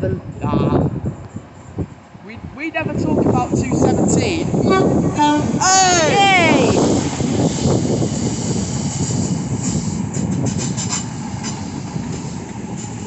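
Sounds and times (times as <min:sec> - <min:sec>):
train rumbling past: 0:00.0 - 0:13.0.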